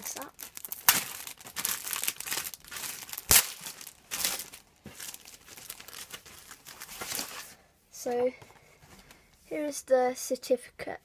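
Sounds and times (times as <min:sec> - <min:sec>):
packaging crinkling and rustling: 0:00.0 - 0:07.6.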